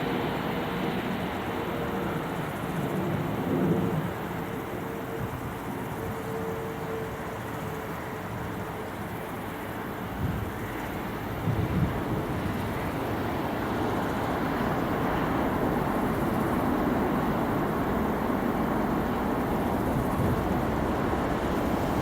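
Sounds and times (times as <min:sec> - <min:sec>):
jet landing rumble: 0:11.3 - 0:22.0.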